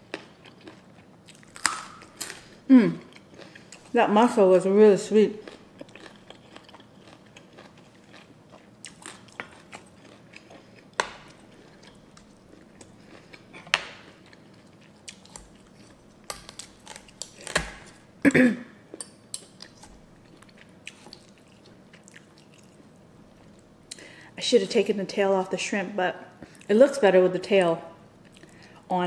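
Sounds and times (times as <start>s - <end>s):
wet chewing: 5.4s - 18.0s, 18.9s - 23.6s.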